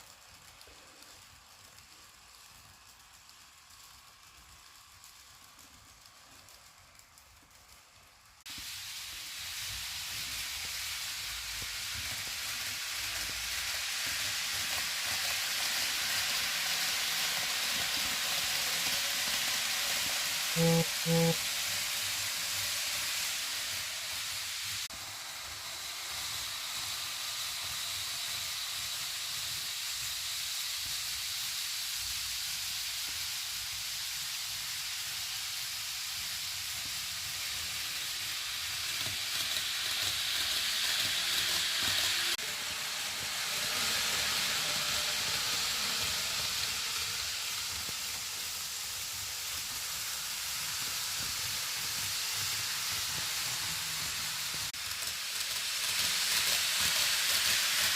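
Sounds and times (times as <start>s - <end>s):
model train running on track: 0.0s - 57.9s.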